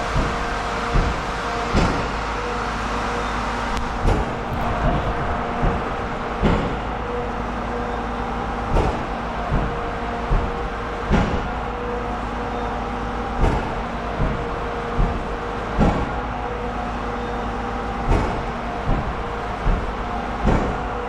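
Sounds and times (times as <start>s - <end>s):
vehicle engine running: 0.0s - 21.0s
loud clunks and knocks: 0.1s - 2.2s, 3.8s - 7.2s, 8.7s - 11.8s, 13.3s - 16.3s, 18.0s - 21.0s.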